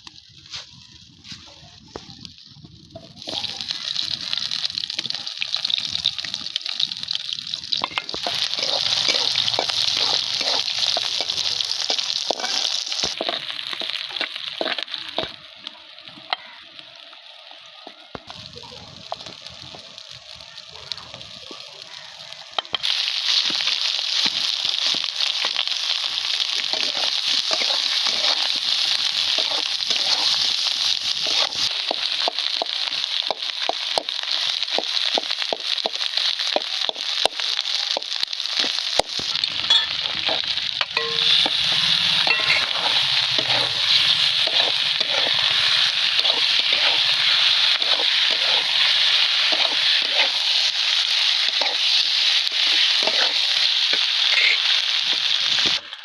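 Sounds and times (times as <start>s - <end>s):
food sizzling in hot oil: 0.0s - 56.0s.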